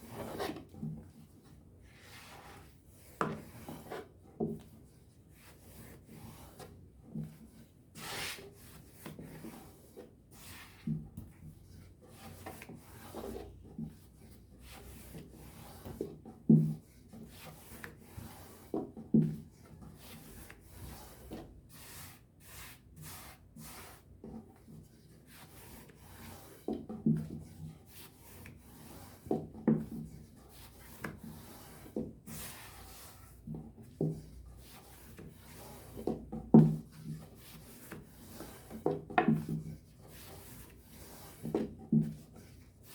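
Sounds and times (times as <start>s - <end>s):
rolling pin rubbing dough: 2.0s - 42.9s.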